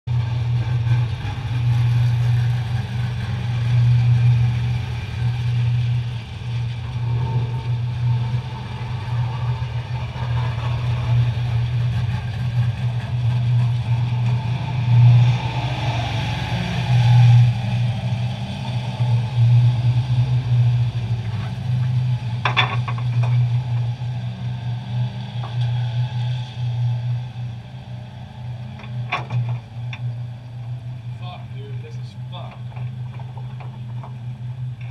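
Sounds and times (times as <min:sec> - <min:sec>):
race car engine idling: 0:00.1 - 0:14.7, 0:27.1 - 0:34.9.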